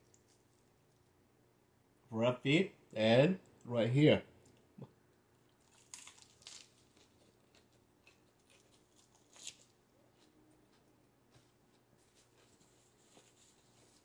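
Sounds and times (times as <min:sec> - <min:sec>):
lettuce wrap being bitten and chewed: 0:05.4 - 0:14.0.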